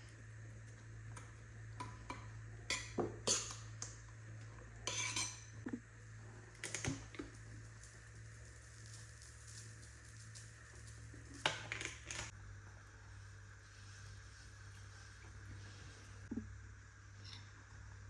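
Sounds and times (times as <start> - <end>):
utensils clinking against dishes: 2.1 - 3.9, 4.9 - 5.5.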